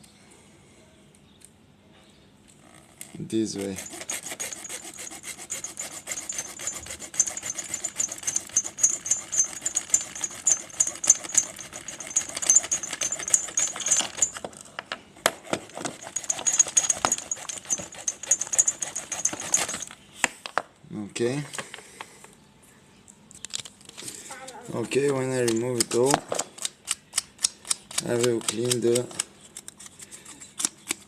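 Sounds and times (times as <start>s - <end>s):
rapid cutting strokes: 3.4s - 14.3s, 15.4s - 19.9s.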